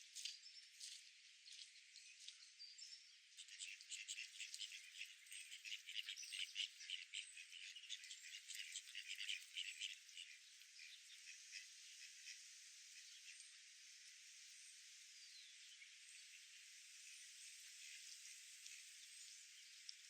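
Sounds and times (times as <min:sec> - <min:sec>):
small birds chirping: 0:00.0 - 0:13.6.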